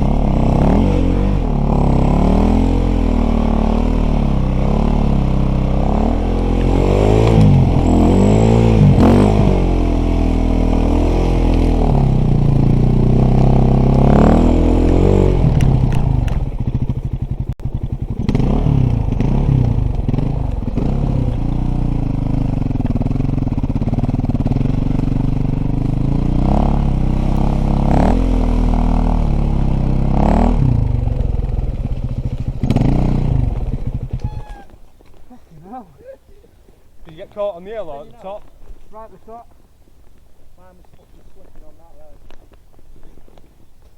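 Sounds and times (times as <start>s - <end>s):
dirt bike engine revving: 0.0s - 34.8s
clatter: 10.6s - 34.4s.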